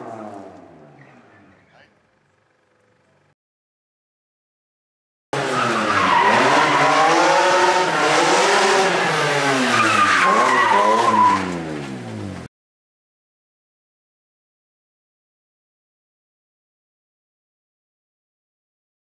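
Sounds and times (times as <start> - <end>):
car engine revving: 5.4 - 12.5
tyre squeal: 9.7 - 11.5.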